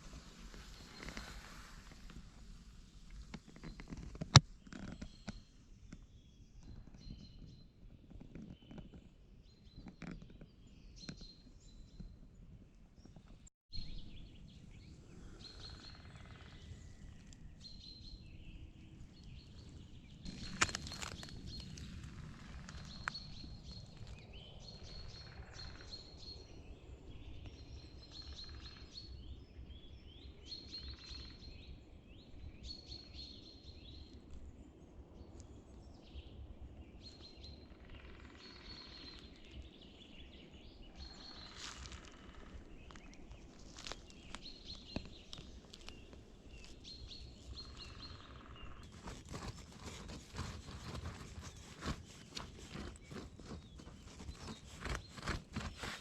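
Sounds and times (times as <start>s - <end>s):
small birds chirping: 0.1s - 56.0s
crackling crunching clicks: 20.3s - 23.2s.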